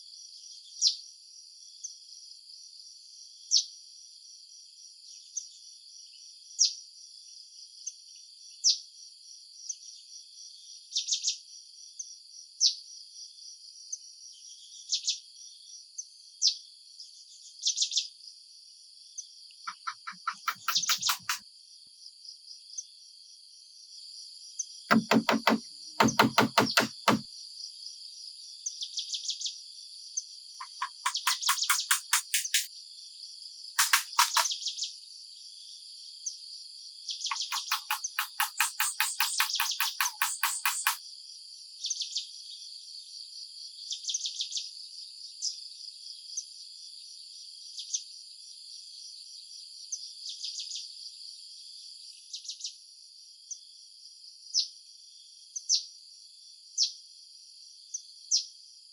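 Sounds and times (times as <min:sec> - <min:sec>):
short sharp chirps: 0:19.7 - 0:21.4, 0:30.6 - 0:32.7, 0:33.8 - 0:34.5
insects chirring: 0:33.8 - 0:34.6.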